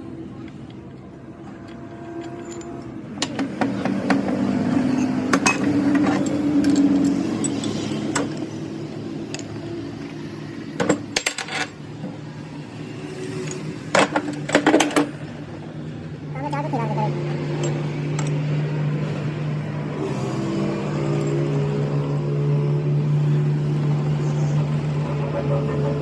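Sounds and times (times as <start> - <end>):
metal tools clinking: 1.6 - 8.6, 9.3 - 10.1, 10.8 - 11.9, 13.3 - 15.2, 17.4 - 18.4, 20.9 - 22.0.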